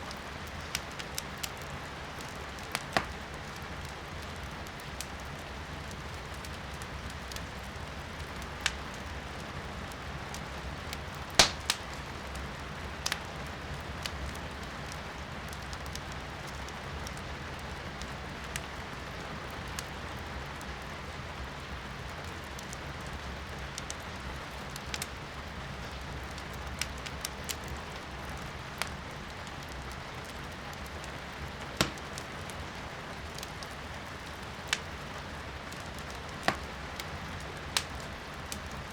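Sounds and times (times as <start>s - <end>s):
firewood crackling and popping: 0.0s - 38.9s
rain hiss heard indoors: 0.0s - 38.9s.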